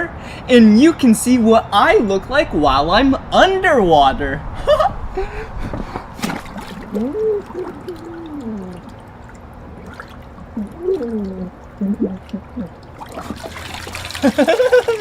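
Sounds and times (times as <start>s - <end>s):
man hooting under water: 6.9s - 12.9s.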